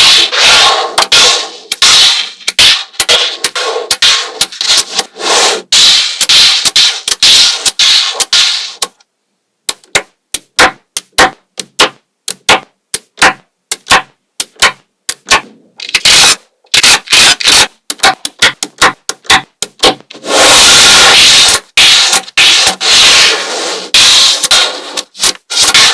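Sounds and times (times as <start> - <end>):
magnetic balls rattling and scraping: 0.0 - 9.0, 13.7 - 25.9
magnetic balls clicking together: 6.2 - 20.1.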